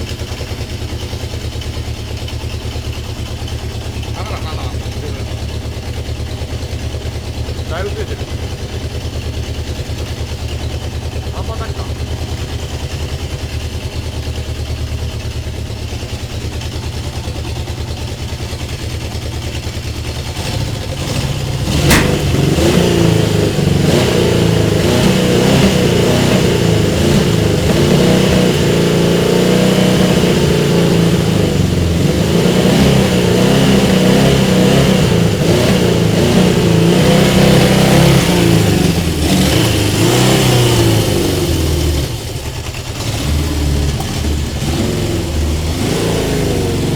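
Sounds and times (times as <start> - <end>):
motorcycle engine idling and revving: 0.0 - 46.9
sharp click: 21.7 - 22.9.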